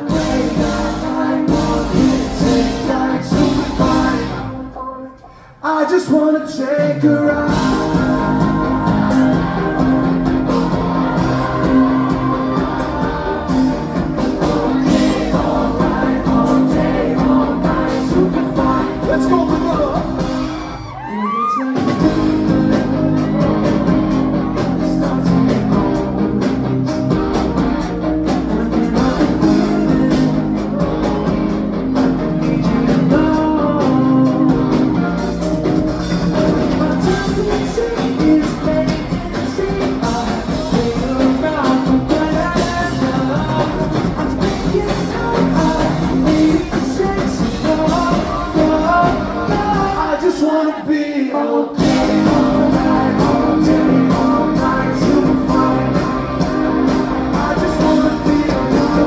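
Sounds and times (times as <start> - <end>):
live pop band: 0.0 - 59.0
person singing: 0.0 - 59.0
rising sweep: 7.3 - 21.0.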